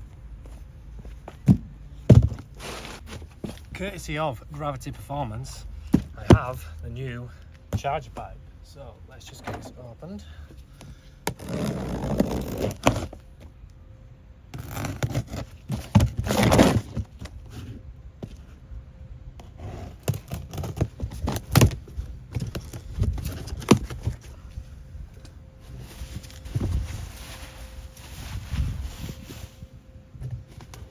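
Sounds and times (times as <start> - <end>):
packaging scraping and rustling: 11.3 - 13.3, 14.6 - 17.8, 19.7 - 24.3, 25.6 - 29.8.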